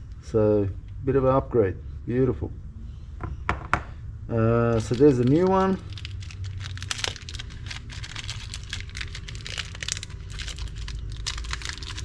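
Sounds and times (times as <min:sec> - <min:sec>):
plastic packaging crinkling: 0:04.7 - 0:12.0.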